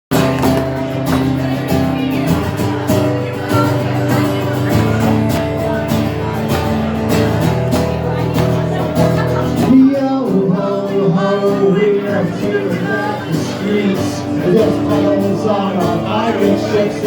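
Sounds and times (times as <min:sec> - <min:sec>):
acoustic guitar strumming: 0:00.1 - 0:17.0.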